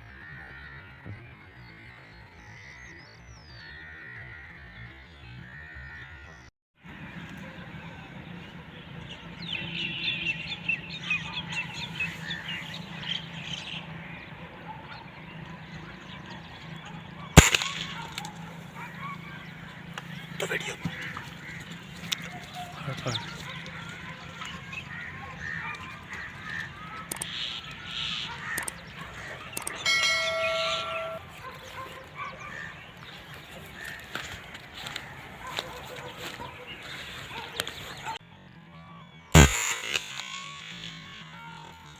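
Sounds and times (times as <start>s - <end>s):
birds chirping: 0.0s - 41.9s
bell-like ringing tone: 29.8s - 31.3s.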